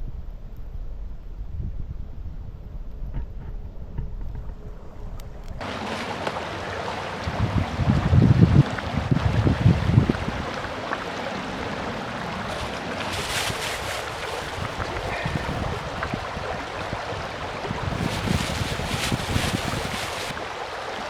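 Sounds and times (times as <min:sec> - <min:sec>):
wind buffeting microphone: 0:00.0 - 0:21.0
mountain stream rushing: 0:05.6 - 0:21.0.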